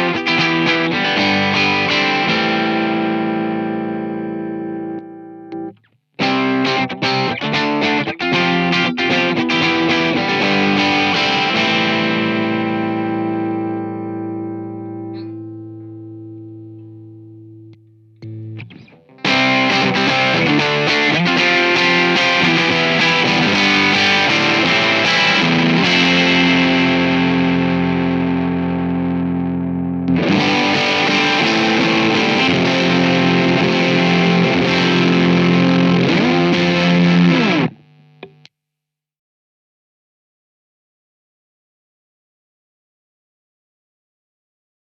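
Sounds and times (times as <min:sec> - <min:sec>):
overdriven electric guitar: 0:00.0 - 0:38.5.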